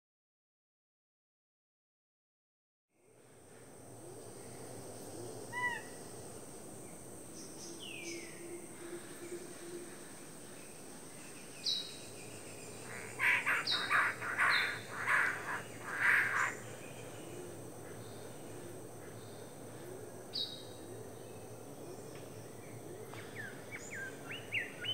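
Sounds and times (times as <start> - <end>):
high insect drone: 3.0 - 24.9
bird calling: 11.7 - 17.6.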